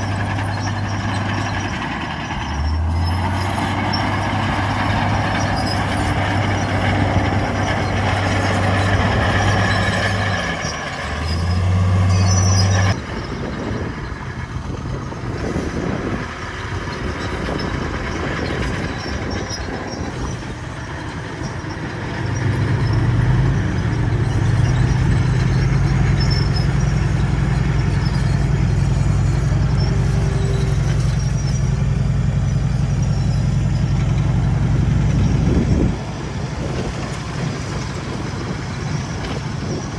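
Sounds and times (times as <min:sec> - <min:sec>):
heavy machinery diesel engines: 0:00.0 - 0:39.9.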